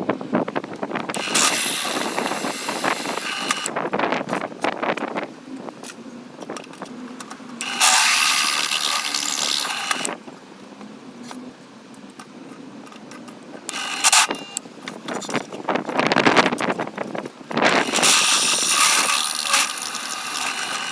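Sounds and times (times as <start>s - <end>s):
belt grinder high-pitched whine: 1.1s - 3.8s, 7.6s - 10.2s, 13.7s - 14.6s, 17.7s - 20.9s.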